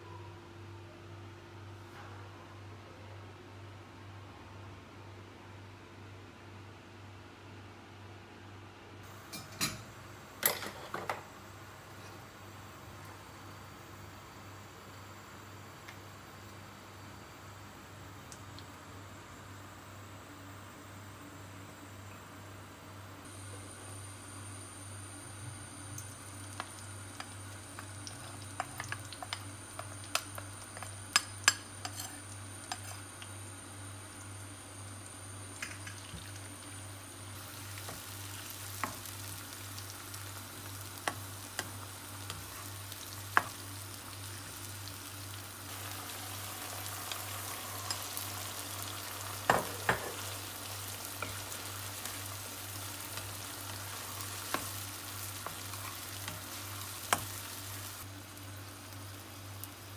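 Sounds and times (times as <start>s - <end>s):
food sizzling in oil: 23.3s - 59.9s.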